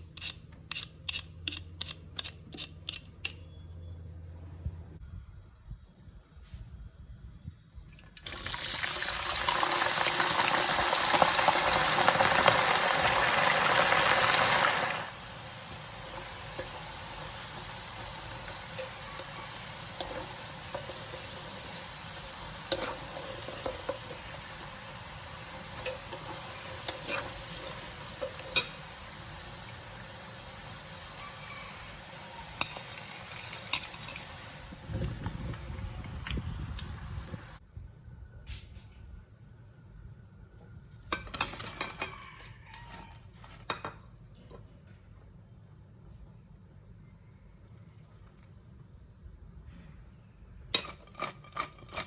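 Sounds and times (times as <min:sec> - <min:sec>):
utensil clicking against pan: 0:00.1 - 0:03.5
food sizzling in hot oil: 0:08.2 - 0:37.6.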